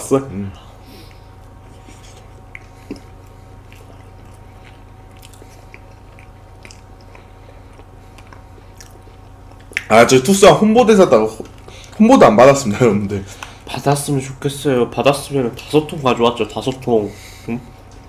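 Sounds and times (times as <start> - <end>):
steady low hum: 0.0 - 18.0
faint chewing: 0.6 - 10.3, 11.0 - 13.9.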